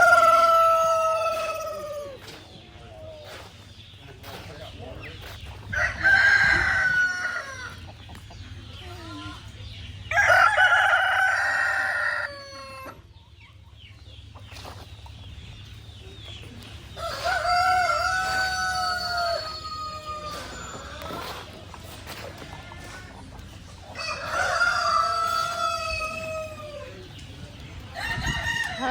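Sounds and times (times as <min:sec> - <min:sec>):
rooster crowing: 0:00.0 - 0:02.2, 0:05.8 - 0:07.8, 0:10.1 - 0:13.0, 0:17.0 - 0:21.3, 0:24.0 - 0:26.9.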